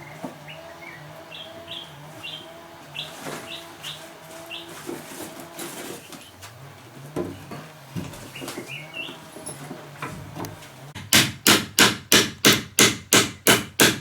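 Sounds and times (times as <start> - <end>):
small bird chirping: 0.0 - 4.8, 8.3 - 9.3
sharp knocks: 10.0 - 14.0.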